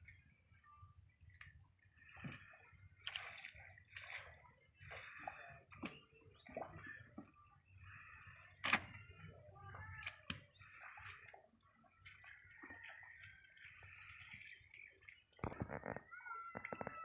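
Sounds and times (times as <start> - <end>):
mud squelching and splashing: 2.3 - 7.0.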